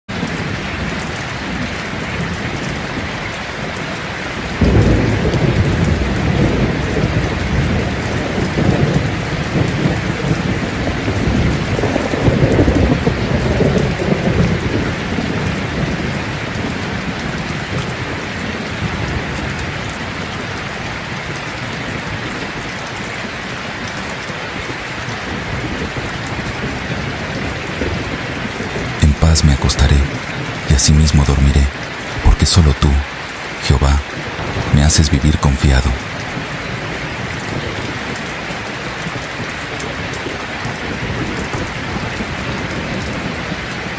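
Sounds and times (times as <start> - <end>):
heavy rain: 0.1 - 43.9
thunder rumbling: 4.4 - 19.9, 34.2 - 34.8.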